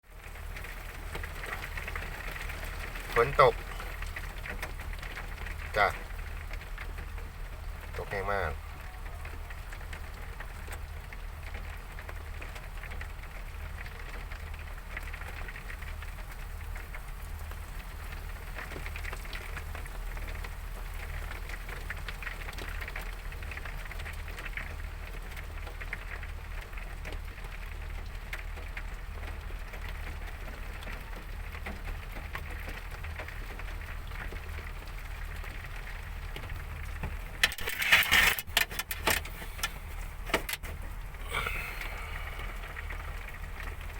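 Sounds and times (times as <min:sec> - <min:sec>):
low steady hum: 0:33.8 - 0:43.9
clattering clicks and knocks: 0:37.4 - 0:40.8
heavy rain hissing: 0:38.8 - 0:43.9.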